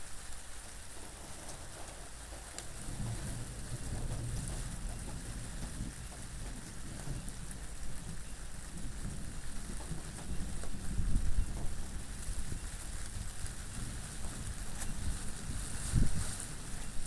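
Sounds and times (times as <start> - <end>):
individual raindrops: 0.0 - 17.0
rain hissing: 0.0 - 17.0
low wind rumble: 2.6 - 17.0.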